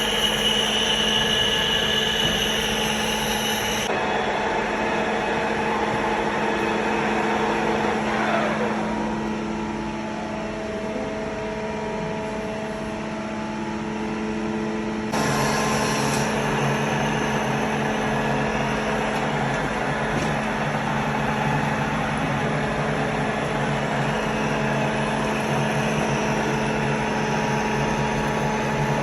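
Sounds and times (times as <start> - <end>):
metal lathe motor hum: 0.0 - 4.0, 15.1 - 29.0.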